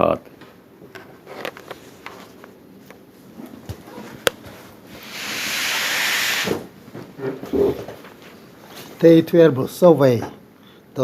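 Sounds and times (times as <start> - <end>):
hiss: 5.0 - 6.6.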